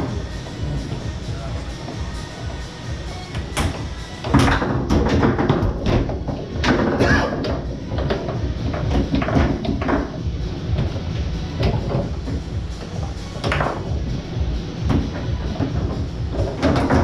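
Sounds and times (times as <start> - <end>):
foosball rods clacking: 3.2 - 17.0
foosball ball knocking: 3.3 - 14.0, 14.8 - 17.0.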